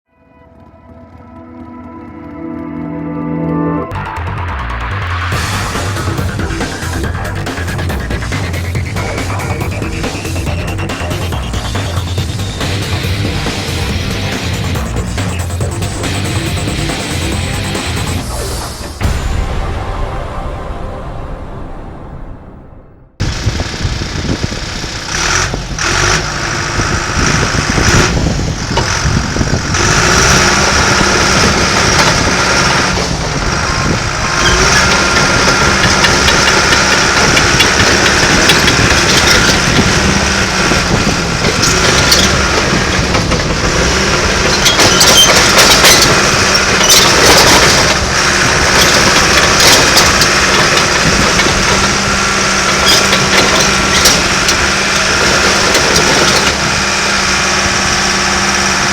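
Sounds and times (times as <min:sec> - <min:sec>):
bulldozer diesel engine running: 0:00.4 - 0:19.7, 0:23.2 - 0:58.9
short metal clanks and clicks: 0:34.4 - 0:56.8.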